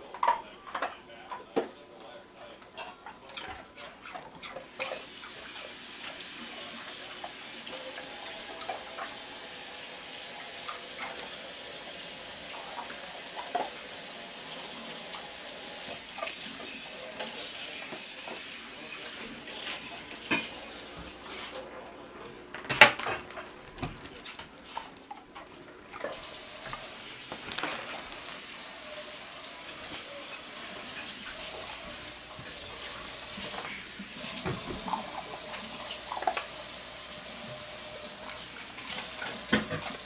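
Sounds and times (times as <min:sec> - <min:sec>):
dog lapping wetly: 0:02.8 - 0:07.4
ice cubes clicking: 0:27.3 - 0:28.4.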